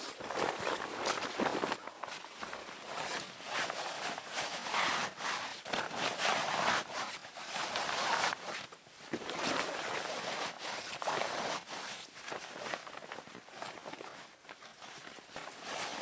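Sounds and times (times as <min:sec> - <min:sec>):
footsteps crunching through snow: 0:00.0 - 0:03.8.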